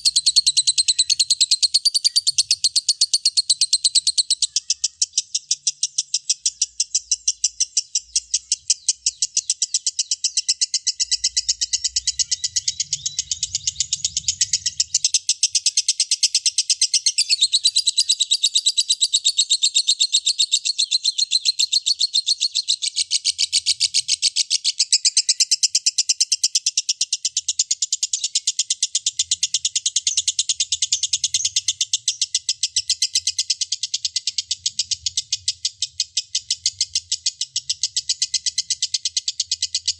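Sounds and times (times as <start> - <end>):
lovebird shrill chatter: 0.0 - 6.9.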